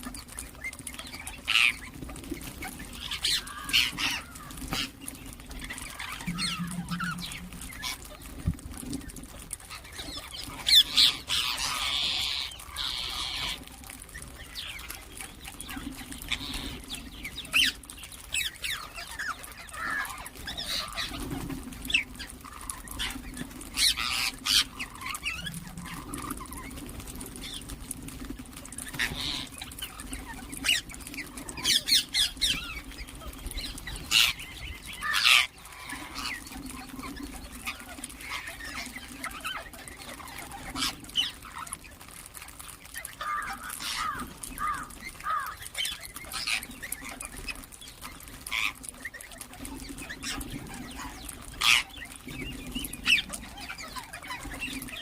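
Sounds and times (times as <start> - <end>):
parakeets squawking and chirping: 0.1 - 13.6, 14.4 - 55.0
low hum: 5.7 - 8.9.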